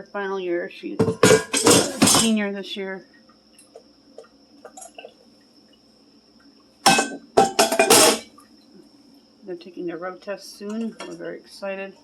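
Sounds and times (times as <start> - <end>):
dishes and cutlery clinking: 1.0 - 2.4, 6.9 - 8.3
dishes clattering: 1.0 - 2.4, 6.9 - 8.3.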